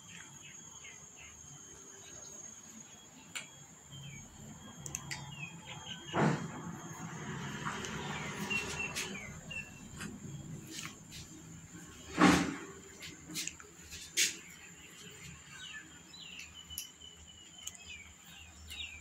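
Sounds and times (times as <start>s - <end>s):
small birds chirping: 0.0s - 12.1s, 12.8s - 19.0s.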